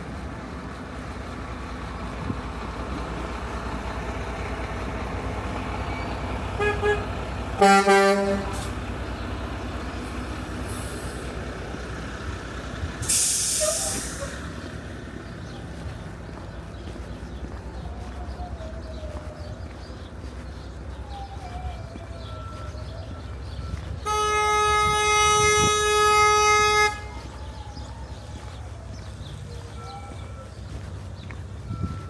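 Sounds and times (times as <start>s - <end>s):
heavy vehicle engine running: 0.0s - 32.0s
street traffic: 0.0s - 32.0s
vehicle horn honking: 6.6s - 8.7s, 24.0s - 27.2s
loud hiss: 13.0s - 14.4s.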